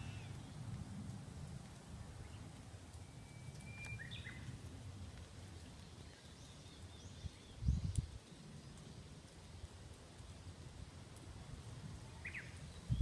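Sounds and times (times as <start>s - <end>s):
birds chirping: 3.2s - 4.5s.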